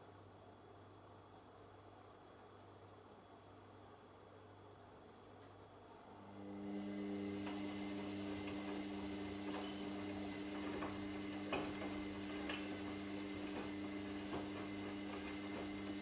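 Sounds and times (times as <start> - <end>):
washing machine motor humming: 6.0 - 16.0
laundry tumbling clicks: 7.4 - 16.0.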